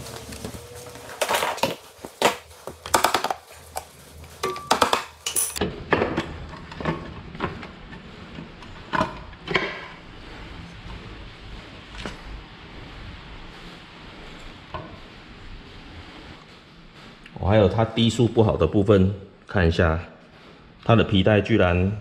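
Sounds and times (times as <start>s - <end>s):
tools and parts clinking: 1.1s - 7.2s.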